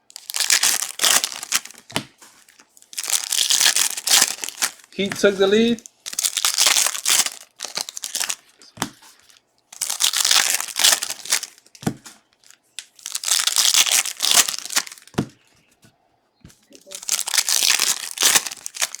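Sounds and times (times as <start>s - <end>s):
foil wrappers crinkling: 0.1s - 15.2s, 16.7s - 19.0s.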